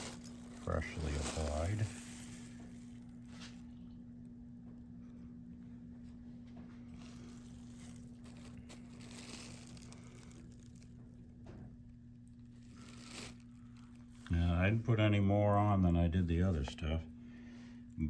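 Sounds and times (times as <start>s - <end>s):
leather jacket rustling: 0.0s - 3.6s, 7.0s - 10.8s
low electrical hum: 0.0s - 18.0s.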